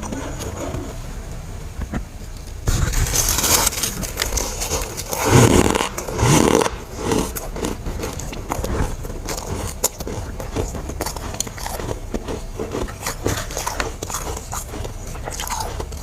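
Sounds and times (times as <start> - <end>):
frost being chewed crunching: 2.7 - 16.0.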